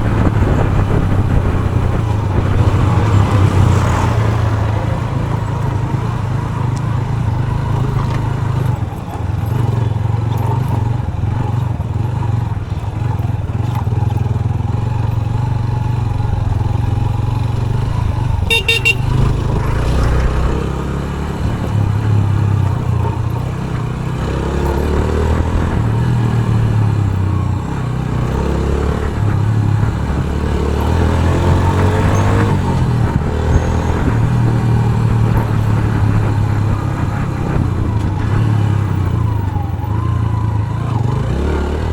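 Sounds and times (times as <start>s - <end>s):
motorcycle engine revving: 0.0s - 41.9s
vehicle horn: 18.3s - 20.0s.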